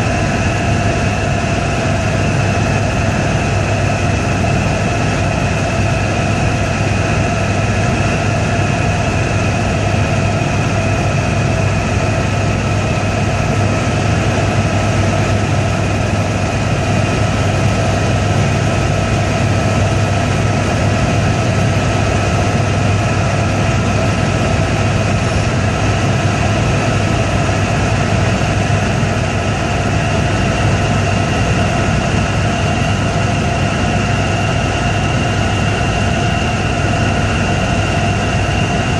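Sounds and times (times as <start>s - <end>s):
helicopter engine and rotor noise: 0.0s - 38.9s.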